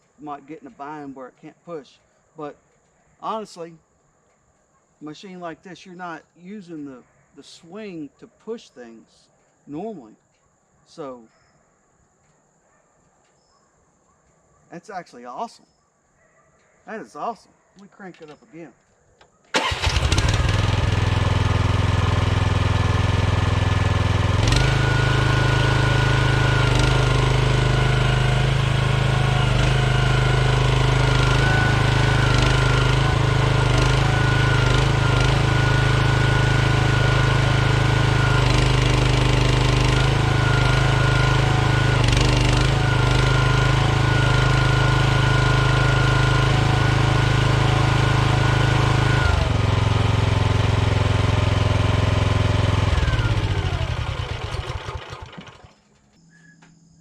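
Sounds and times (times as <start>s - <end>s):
excavator engine running: 19.5s - 55.8s.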